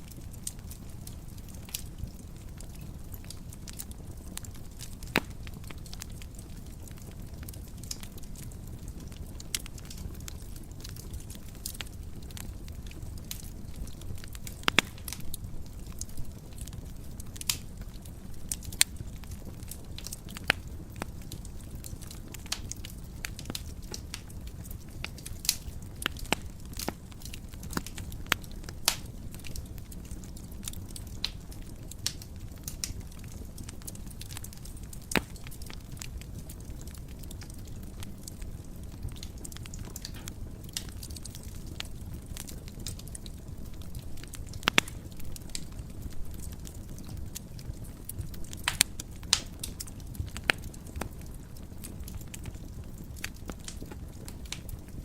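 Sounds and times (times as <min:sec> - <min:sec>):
low rumble of flames: 0:00.0 - 0:55.0
wood fire crackling: 0:00.0 - 0:55.0
sharp pops and snaps: 0:02.7 - 0:06.2, 0:09.5 - 0:17.9, 0:22.0 - 0:29.9, 0:30.6 - 0:35.9, 0:39.1 - 0:51.2.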